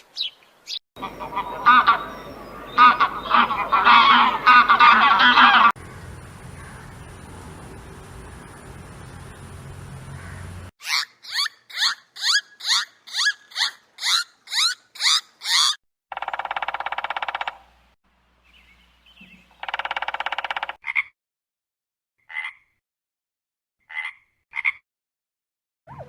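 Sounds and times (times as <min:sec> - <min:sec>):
high falling animal chirps: 0:10.8 - 0:17.6.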